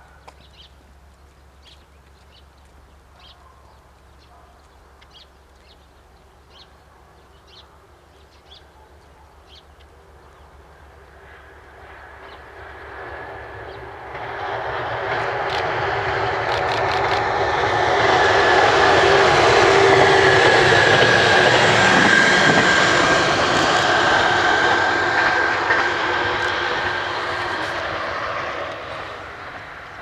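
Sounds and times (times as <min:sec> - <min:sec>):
diesel railcar passing: 0:09.4 - 0:30.0
engine whine: 0:12.2 - 0:30.0.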